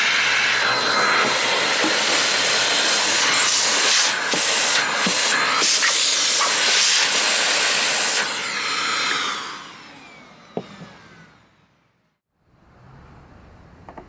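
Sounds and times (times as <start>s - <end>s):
vacuum cleaner running: 0.0s - 12.2s
motor winding down whine: 8.6s - 11.9s.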